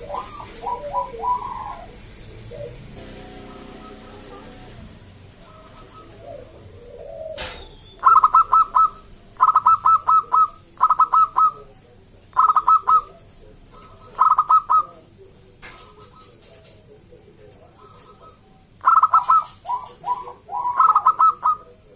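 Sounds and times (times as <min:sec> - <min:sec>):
dove cooing: 0:00.0 - 0:21.9.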